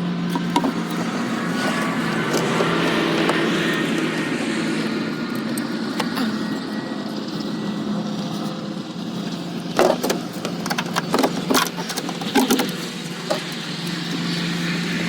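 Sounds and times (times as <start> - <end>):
steady low hum: 0.0 - 15.0
sharp clicks and knocks of parts: 0.3 - 4.3, 9.8 - 14.1.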